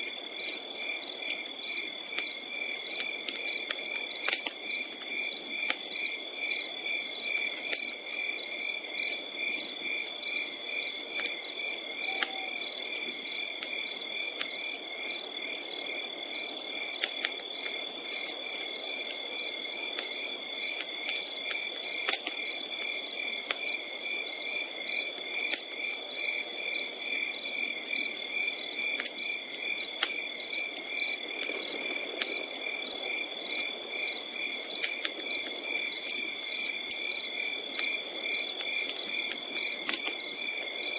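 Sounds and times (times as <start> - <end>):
campfire crackling and popping: 0.0 - 40.9
crickets chirping: 0.0 - 40.9
high insect trill: 10.8 - 15.2.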